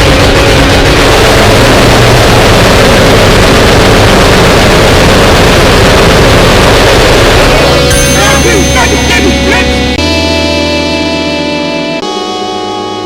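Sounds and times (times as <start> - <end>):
wall of distorted noise: 0.0 - 10.0
low drone: 0.0 - 13.0.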